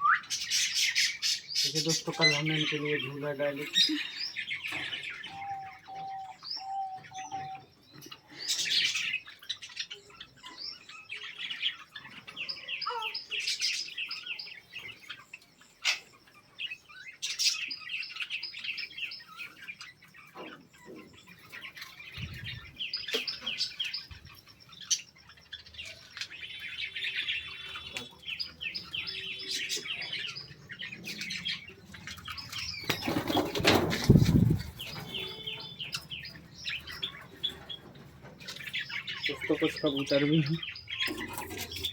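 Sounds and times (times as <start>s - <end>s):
whistled bird notes: 0.0s - 1.0s
caged birds chirping: 0.0s - 41.9s
wings flapping: 32.8s - 35.1s.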